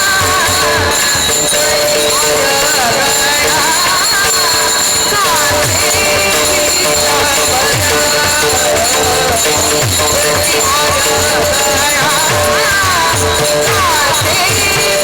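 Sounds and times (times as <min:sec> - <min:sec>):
harmonium drone: 0:00.0 - 0:15.0
person singing: 0:00.0 - 0:15.0
ringing hand cymbals: 0:00.0 - 0:15.0
hand drum playing: 0:05.6 - 0:15.0.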